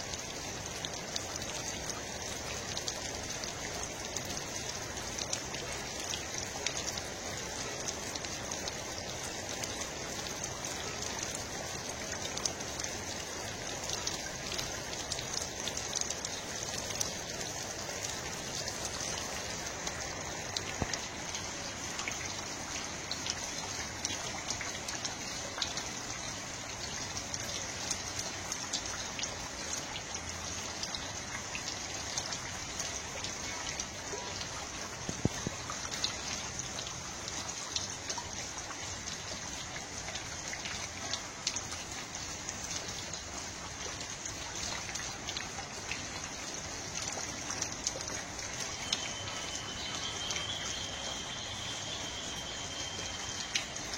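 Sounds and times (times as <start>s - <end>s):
water drops pattering: 18.3s - 37.0s, 44.2s - 53.9s.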